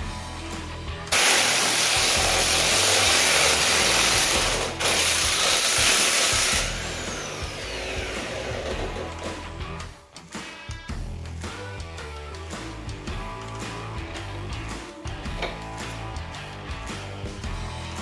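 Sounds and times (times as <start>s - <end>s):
background music: 0.0s - 18.0s
tool winding down whine: 1.1s - 9.3s
power tool running: 1.1s - 9.4s.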